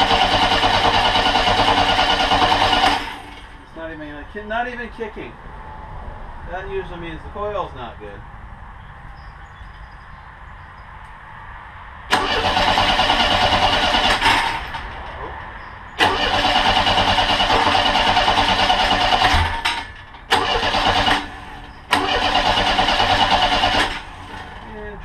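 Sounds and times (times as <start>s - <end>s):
starter cranking engine: 0.0s - 3.6s, 12.1s - 15.0s, 16.0s - 24.7s.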